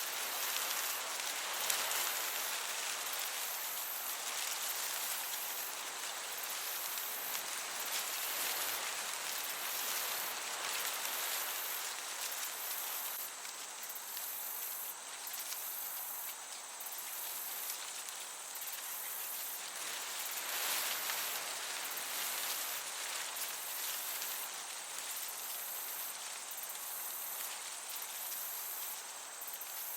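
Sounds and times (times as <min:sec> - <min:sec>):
crickets chirping: 0:00.0 - 0:29.9
gentle breeze hiss: 0:00.0 - 0:29.9.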